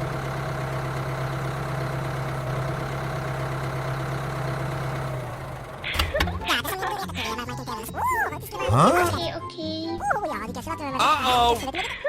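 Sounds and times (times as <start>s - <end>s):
motor humming: 0.0s - 6.5s.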